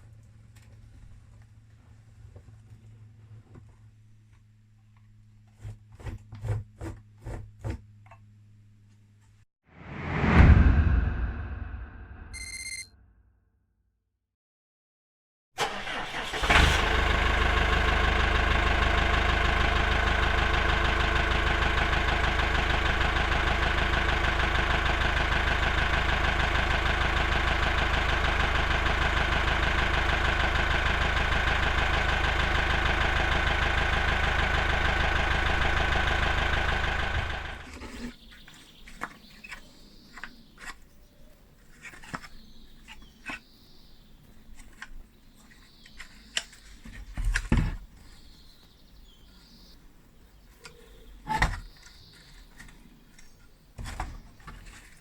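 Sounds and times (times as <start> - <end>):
motor running: 17.4 - 37.7.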